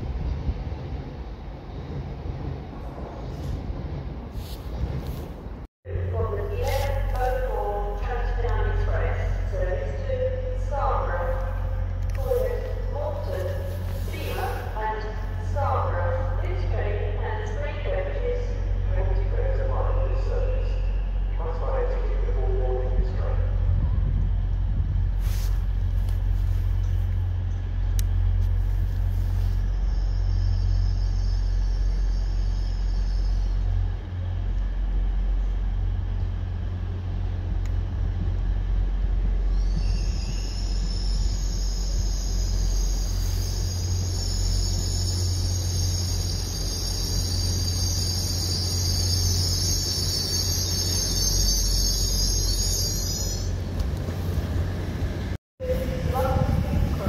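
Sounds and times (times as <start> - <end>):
train rumbling: 0.0 - 57.0
high-pitched train squeal: 29.3 - 33.8, 39.4 - 53.6.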